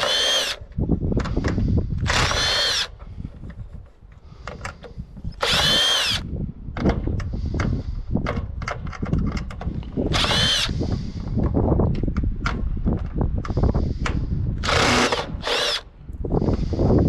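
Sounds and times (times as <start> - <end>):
power drill whining: 0.0 - 0.8, 1.5 - 3.8, 4.7 - 6.3, 10.0 - 11.0, 14.6 - 16.0.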